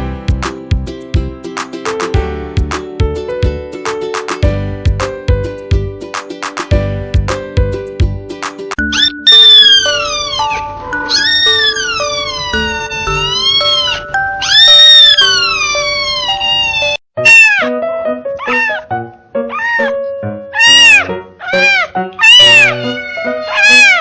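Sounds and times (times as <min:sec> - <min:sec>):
background music: 0:00.0 - 0:15.6
cats meowing loudly: 0:09.0 - 0:17.7, 0:18.4 - 0:18.8, 0:19.5 - 0:19.9, 0:20.6 - 0:24.0.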